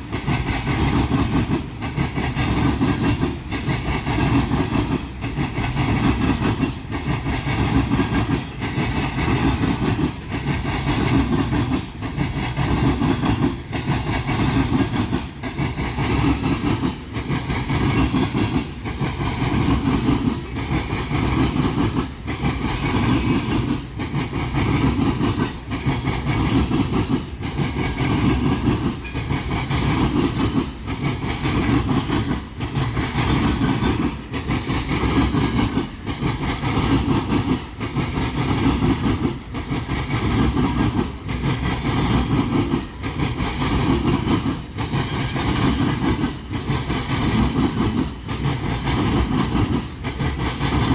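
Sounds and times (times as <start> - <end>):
freight train clattering on rails: 0.0 - 50.9.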